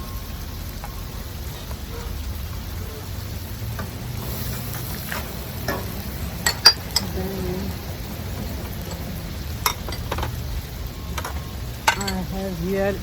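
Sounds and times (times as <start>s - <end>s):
food sizzling in a pan: 0.0s - 13.0s
utensil clinking against pan: 5.7s - 7.2s, 8.8s - 10.4s, 11.2s - 12.3s.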